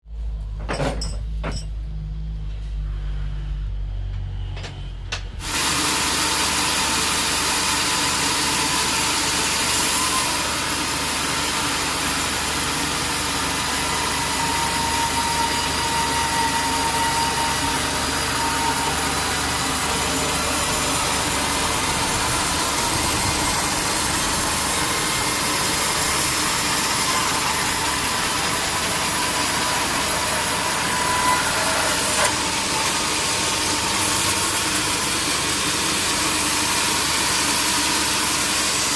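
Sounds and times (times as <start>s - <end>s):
sawmill machinery running: 3.4s - 38.9s
thin steady whine: 16.0s - 31.4s.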